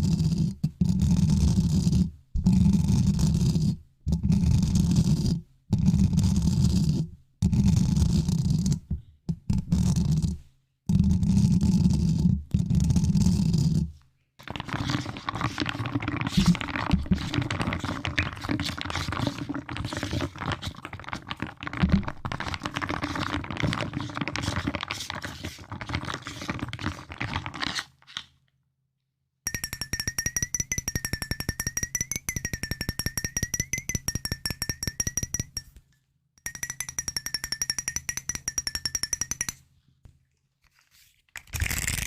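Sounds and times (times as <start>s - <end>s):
close rubbing noise: 0.0s - 7.1s, 22.3s - 28.1s
crackly scratching and tapping: 14.4s - 28.3s.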